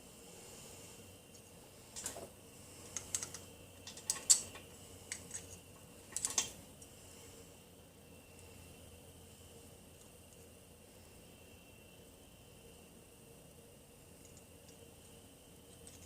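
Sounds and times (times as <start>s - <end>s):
small tools clicking and tapping: 2.9s - 6.6s.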